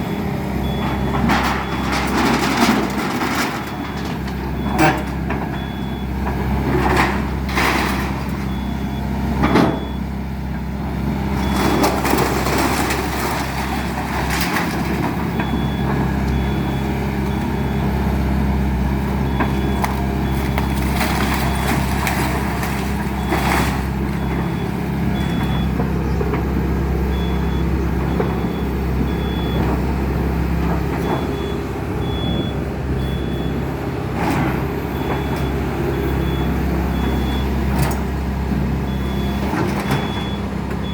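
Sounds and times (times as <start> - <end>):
diesel engine running: 0.0 - 40.9
debris crunching and breaking: 11.4 - 15.9, 18.9 - 26.0.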